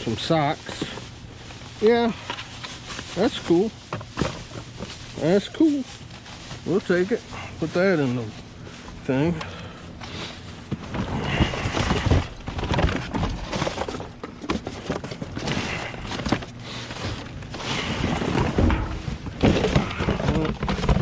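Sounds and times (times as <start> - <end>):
plastic and cardboard rustling: 0.0 - 21.0
items knocking and clattering: 2.2 - 5.3, 10.7 - 21.0.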